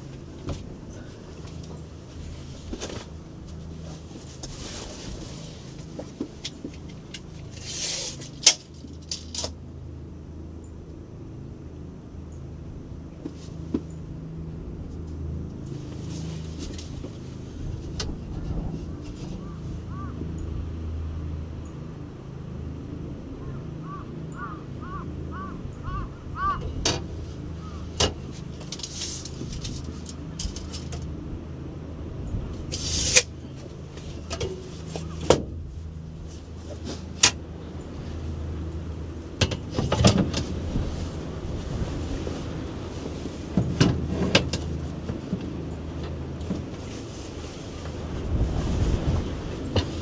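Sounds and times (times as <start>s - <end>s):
low steady rumble: 0.0s - 50.0s
steady low hum: 0.0s - 50.0s
bird calling: 19.3s - 20.5s, 23.4s - 26.8s, 27.5s - 28.0s.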